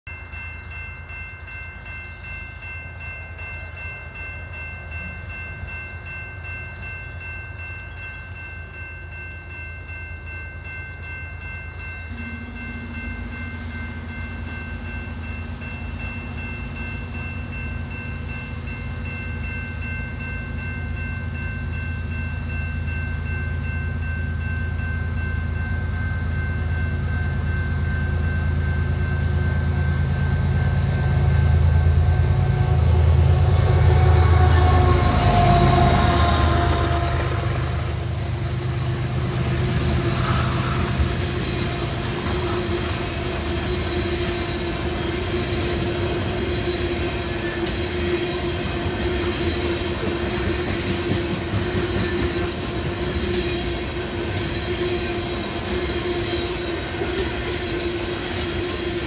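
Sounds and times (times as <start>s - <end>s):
steady high tones: 0.1s - 50.9s
freight train rumble: 0.1s - 59.0s.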